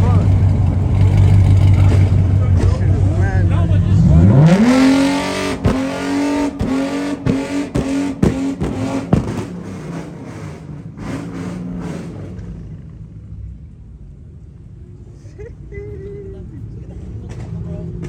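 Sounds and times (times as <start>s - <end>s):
car engine revving: 0.0s - 13.8s
sharp exhaust pops: 4.8s - 9.9s.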